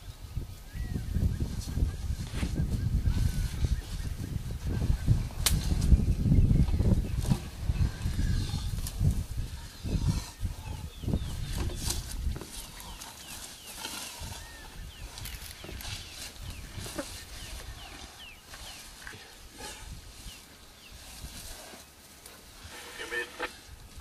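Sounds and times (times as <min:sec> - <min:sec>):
low buffeting noise: 0:00.0 - 0:24.0
bird chirping: 0:09.4 - 0:22.0.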